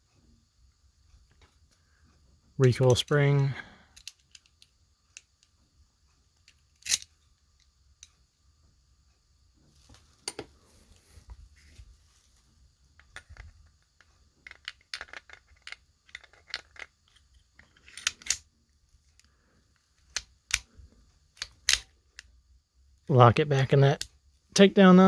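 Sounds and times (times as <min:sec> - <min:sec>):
metallic clicks of pistol parts: 0:03.9 - 0:05.6, 0:06.4 - 0:07.7, 0:14.4 - 0:18.5, 0:19.1 - 0:22.3.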